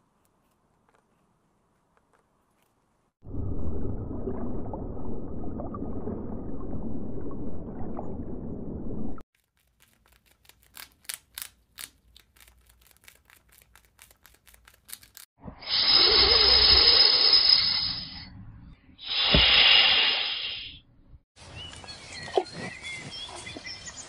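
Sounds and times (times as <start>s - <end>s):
snake hissing: 15.6s - 18.1s, 19.0s - 20.8s.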